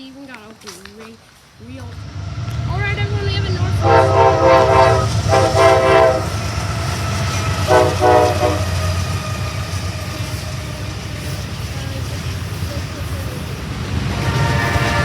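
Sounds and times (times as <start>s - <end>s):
passing train rumble: 1.6s - 15.0s
locomotive air horn: 3.6s - 10.9s, 14.1s - 15.0s.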